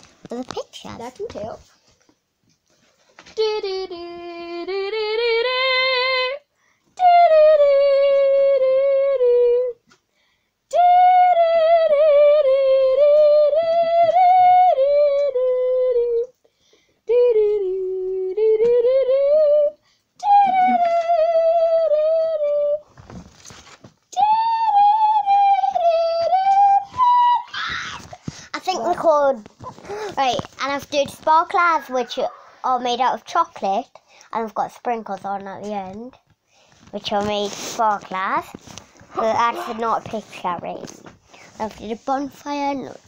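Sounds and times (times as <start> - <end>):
child humming: 17.1 - 22.8, 39.1 - 40.0.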